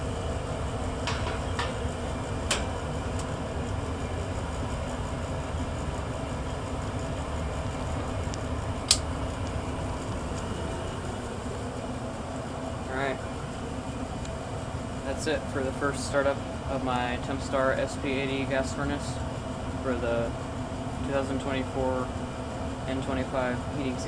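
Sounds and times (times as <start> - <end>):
gas furnace running: 0.0 - 24.0
metal cover clanking: 0.9 - 3.3
light clicks: 8.3 - 9.6.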